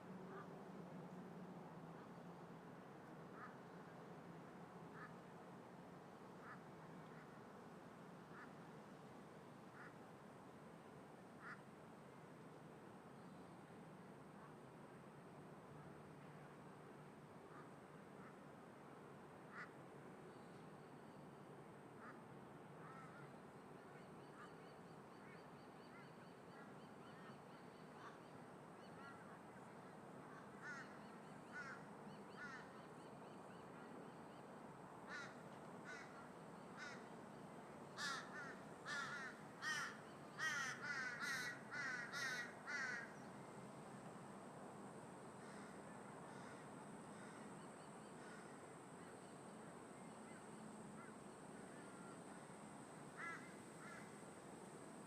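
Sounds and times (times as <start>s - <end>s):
crows cawing: 30.3s - 32.7s, 35.1s - 37.1s, 38.0s - 43.2s, 53.2s - 54.1s.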